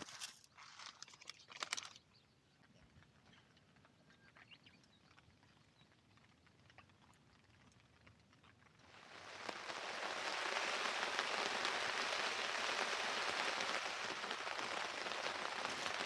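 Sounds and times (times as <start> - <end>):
rustling with sharp clicks: 0.0 - 2.2
rain dripping on tent: 4.4 - 16.0.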